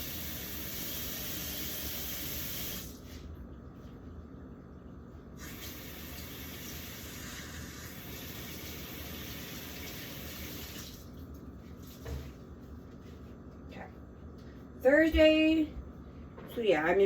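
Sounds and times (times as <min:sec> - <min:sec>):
tap water running into sink: 0:05.4 - 0:11.1.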